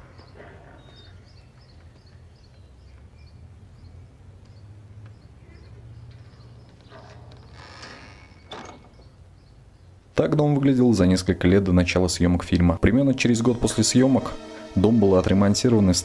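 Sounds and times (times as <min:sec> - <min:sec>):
small bird chirping: 0:00.0 - 0:10.2.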